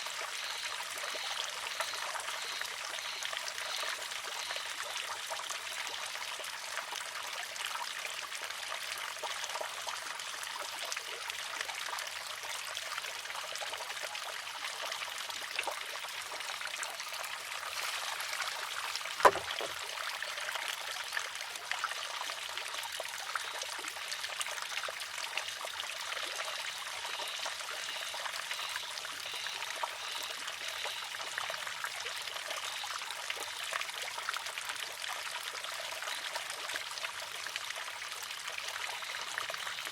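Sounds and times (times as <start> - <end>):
water trickling: 14.2 - 39.9
bamboo arm clacking on rock: 19.2 - 19.8.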